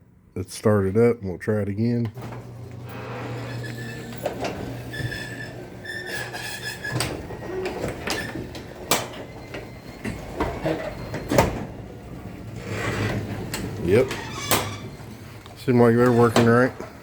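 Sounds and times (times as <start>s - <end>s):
garage door opener running: 2.1s - 17.0s
high squeal: 3.0s - 8.4s.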